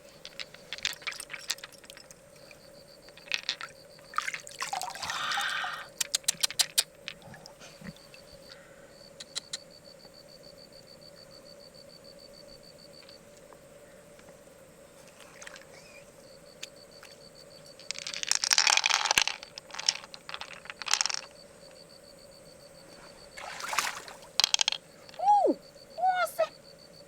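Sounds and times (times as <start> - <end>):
river water splashing: 23.4 - 24.4.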